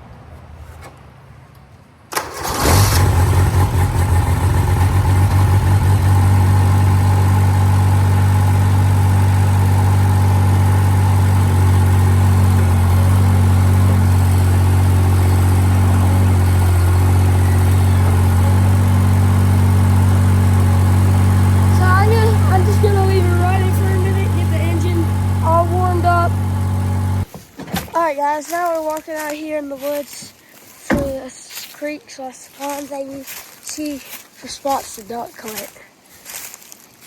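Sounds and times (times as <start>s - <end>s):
engine running loud: 2.2s - 27.3s.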